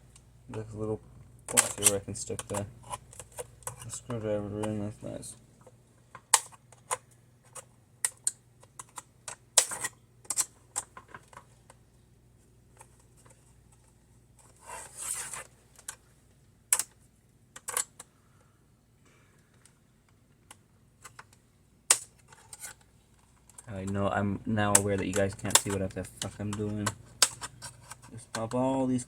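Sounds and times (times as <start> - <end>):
plastic clips snapping: 16.7 - 17.0, 20.4 - 22.2.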